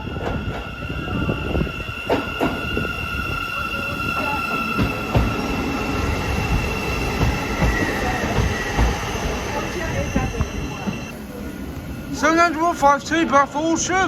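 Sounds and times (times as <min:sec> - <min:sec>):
high wheel squeal: 0:00.0 - 0:11.1
train rail rumble: 0:00.0 - 0:12.8
train wheel knocks: 0:07.2 - 0:09.1.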